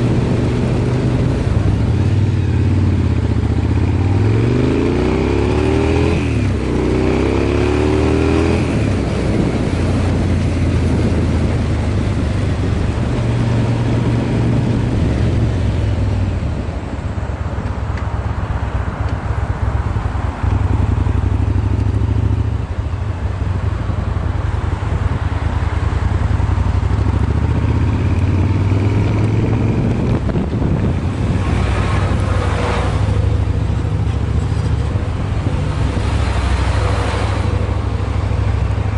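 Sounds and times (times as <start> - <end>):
motorcycle engine deep exhaust: 19.8 - 38.9.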